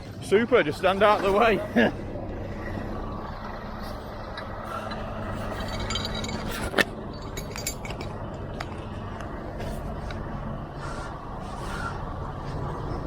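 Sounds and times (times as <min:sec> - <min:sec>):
truck diesel engine running: 0:00.0 - 0:13.0
metallic clinks and rattles: 0:04.9 - 0:09.0.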